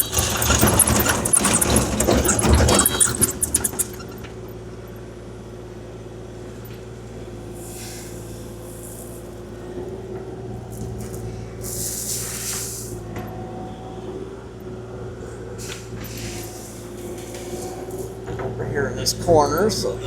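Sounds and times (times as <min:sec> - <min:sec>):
gravel rattle: 0:00.0 - 0:04.6
excavator diesel engine running: 0:00.0 - 0:07.6
brief hisses: 0:11.6 - 0:12.9.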